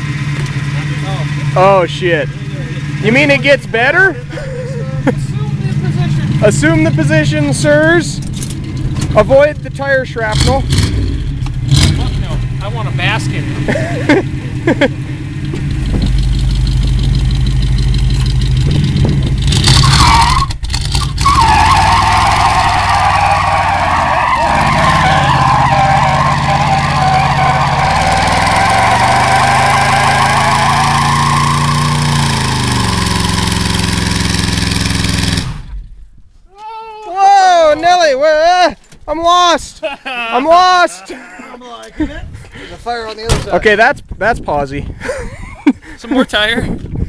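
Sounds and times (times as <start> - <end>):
car engine revving hard: 10.2 - 35.8
tyres squealing: 19.6 - 33.7.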